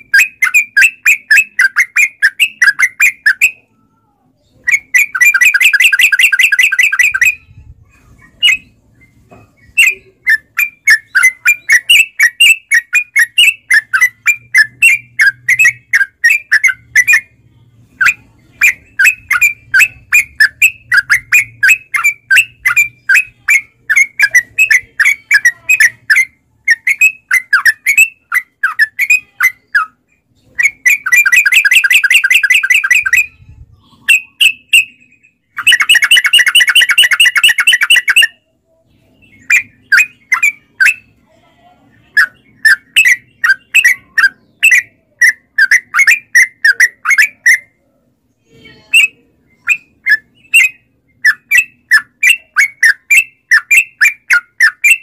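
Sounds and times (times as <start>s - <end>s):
bird chattering song: 0.0s - 3.7s, 4.4s - 41.4s, 42.0s - 55.0s
buzzy bird trill: 0.0s - 3.8s, 4.4s - 55.0s.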